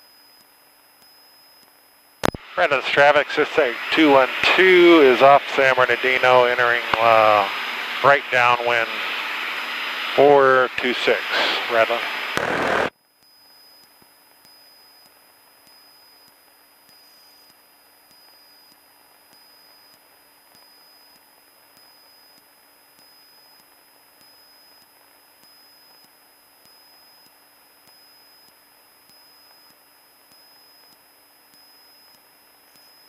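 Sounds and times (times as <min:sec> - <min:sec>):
faint radio hiss: 0:02.2 - 0:12.9
thin high whines: 0:02.4 - 0:12.9.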